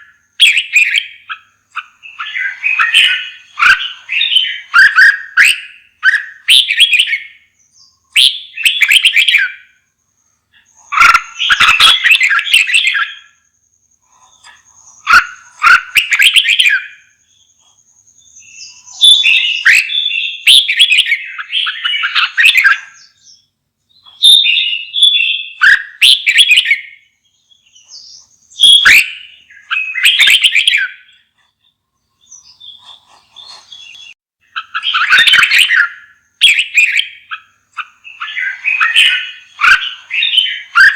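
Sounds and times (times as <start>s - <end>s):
bulbul singing: 0.0s - 40.9s.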